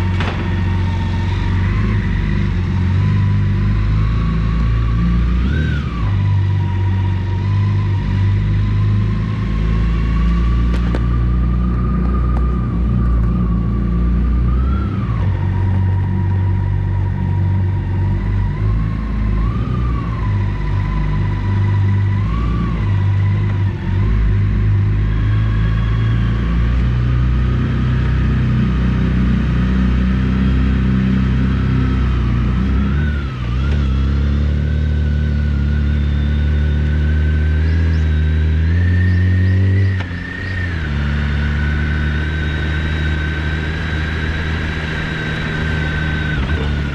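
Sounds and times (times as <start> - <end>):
motorcycle engine running: 20.4 - 46.9.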